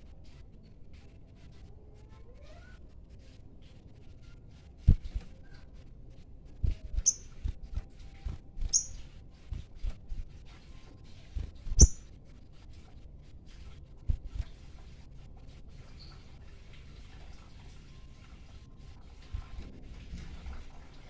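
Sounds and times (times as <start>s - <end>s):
bird giving sharp high calls: 7.1s - 7.3s, 8.7s - 9.0s, 11.8s - 12.0s.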